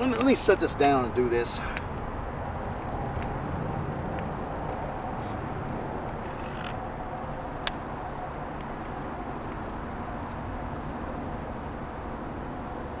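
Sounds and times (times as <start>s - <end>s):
sharp metallic clink: 7.6s - 8.0s.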